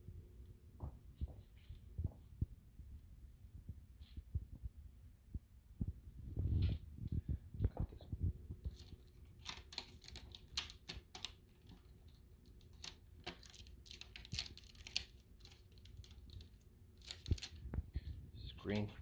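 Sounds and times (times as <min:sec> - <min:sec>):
cardboard and plastic packaging rustling: 0:06.4 - 0:18.9.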